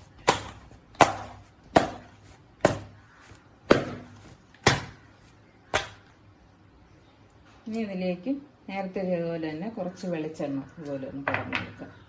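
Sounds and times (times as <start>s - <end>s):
dough slapping on worktop: 0.0s - 3.0s, 3.7s - 5.0s, 5.7s - 6.0s.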